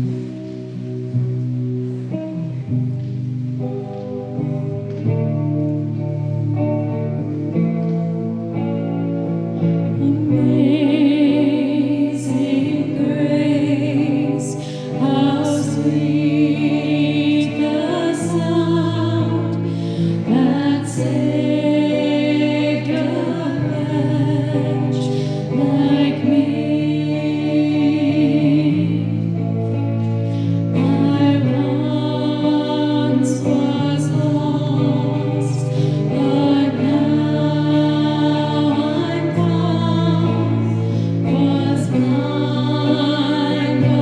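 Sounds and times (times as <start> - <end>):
voices singing worship song: 9.6 - 44.0.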